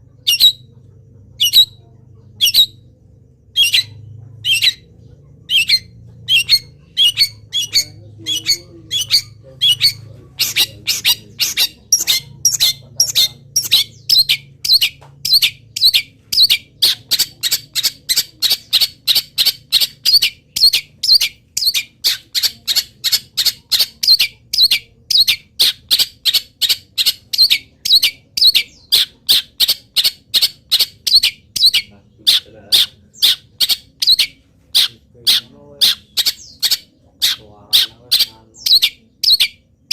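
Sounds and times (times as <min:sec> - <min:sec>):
shrike calling sharply: 0:03.5 - 0:19.2.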